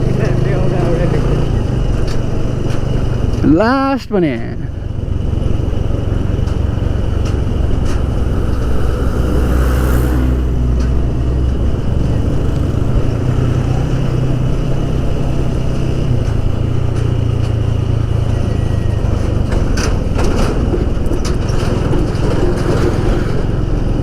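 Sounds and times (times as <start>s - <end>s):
motorcycle engine running: 0.0s - 3.5s, 4.7s - 24.0s
road and wind noise: 0.0s - 24.0s.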